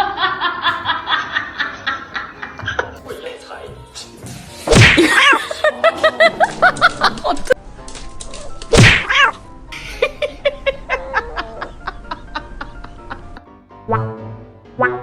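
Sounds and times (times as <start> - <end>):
background music: 0.0 - 15.0
loud slap: 4.7 - 5.2, 8.7 - 9.2.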